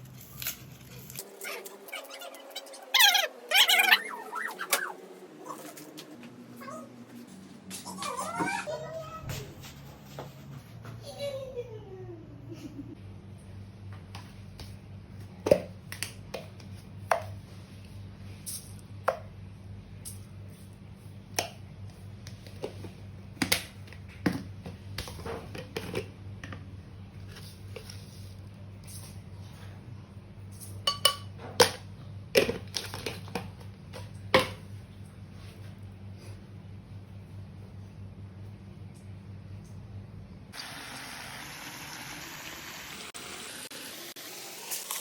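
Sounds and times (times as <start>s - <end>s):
steady low hum: 9.0s - 40.6s.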